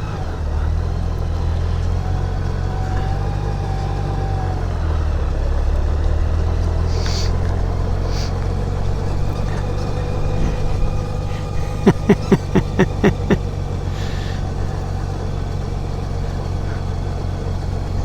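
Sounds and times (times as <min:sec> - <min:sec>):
short high hisses: 0:06.9 - 0:07.4, 0:08.1 - 0:08.4.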